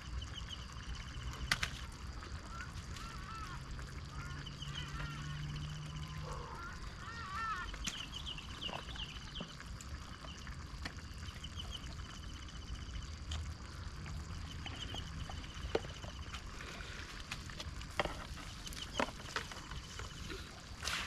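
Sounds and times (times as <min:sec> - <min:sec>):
low steady rumble: 0:00.0 - 0:21.0
birds warbling and trilling: 0:00.2 - 0:17.3, 0:18.0 - 0:20.9.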